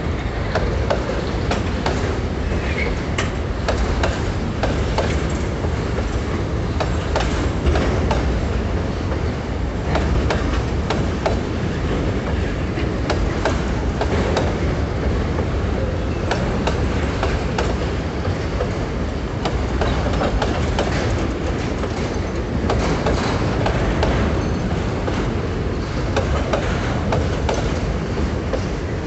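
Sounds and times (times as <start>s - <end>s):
steel wheels rumbling on rail: 0.0s - 29.0s
wheels clacking over rail joints: 0.1s - 28.9s.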